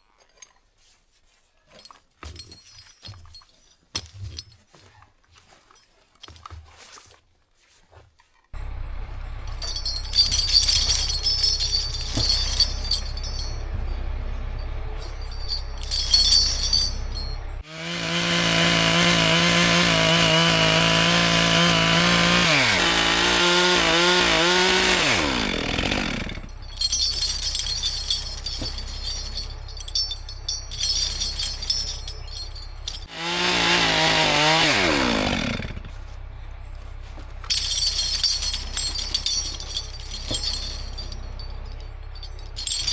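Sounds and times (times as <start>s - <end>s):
chainsaw revving: 17.6s - 27.4s, 32.3s - 37.0s.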